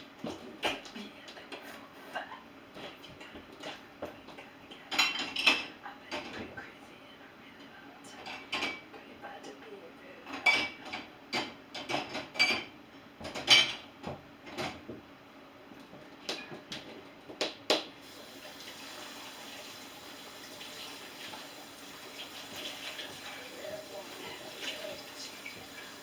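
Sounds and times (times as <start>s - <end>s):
dishes and cutlery clinking: 4.9s - 6.4s, 8.2s - 8.9s, 10.3s - 13.9s
running water rushing: 18.0s - 26.0s.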